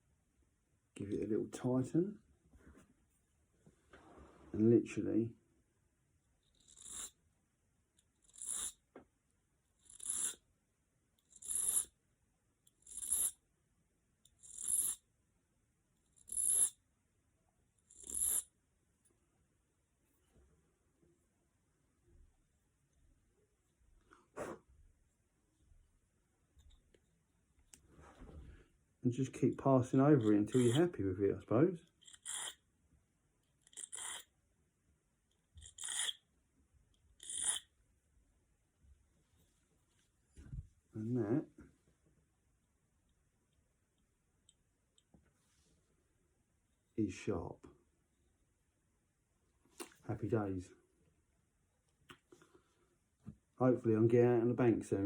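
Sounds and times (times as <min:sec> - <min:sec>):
file scraping steel hook: 0:06.5 - 0:07.2, 0:08.2 - 0:08.8, 0:09.8 - 0:10.4, 0:11.3 - 0:11.9, 0:12.7 - 0:13.4, 0:14.3 - 0:15.0, 0:17.9 - 0:18.5, 0:30.2 - 0:30.9, 0:31.9 - 0:32.6, 0:33.6 - 0:34.3, 0:35.6 - 0:36.2, 0:37.2 - 0:37.7
file rasping on metal hook: 0:30.3 - 0:30.8, 0:32.0 - 0:32.6, 0:35.6 - 0:36.2, 0:37.2 - 0:37.6.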